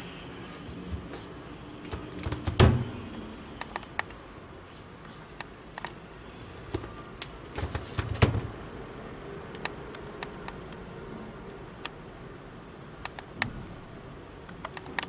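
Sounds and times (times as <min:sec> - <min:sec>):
sneakers handling clicks and taps: 0:05.8 - 0:08.5.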